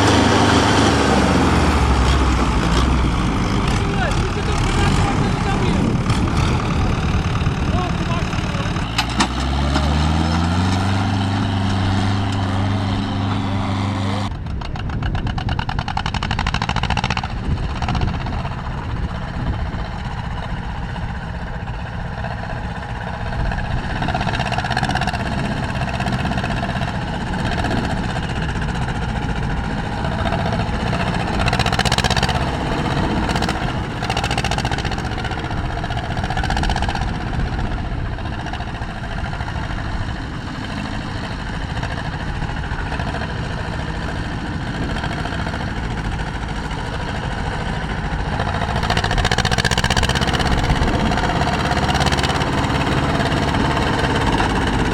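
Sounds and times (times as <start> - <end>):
tractor engines running: 0.0 - 54.9.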